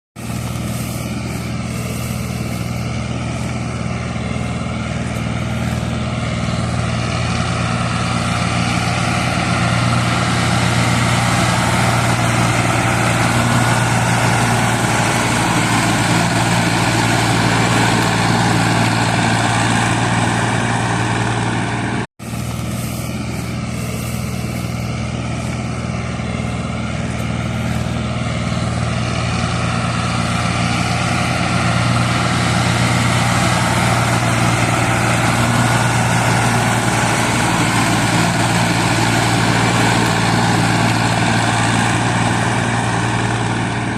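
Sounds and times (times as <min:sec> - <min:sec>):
tractor diesel engine running: 0:00.2 - 0:43.9.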